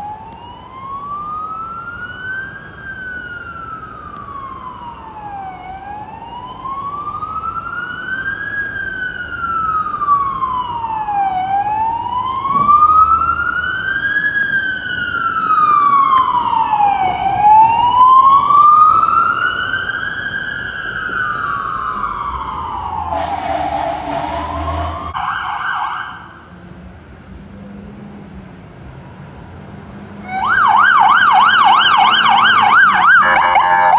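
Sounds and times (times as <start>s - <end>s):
fire truck siren wailing: 0.0s - 26.5s, 30.2s - 33.9s
harsh sound: 32.2s - 33.9s.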